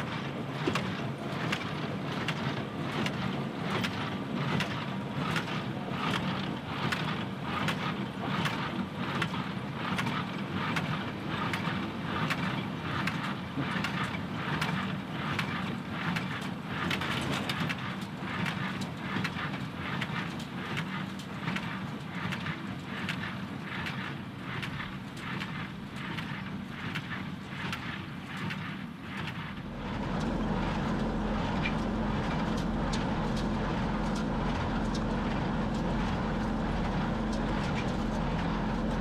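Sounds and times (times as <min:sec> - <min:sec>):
tractor diesel engine drone: 0:29.0 - 0:39.0.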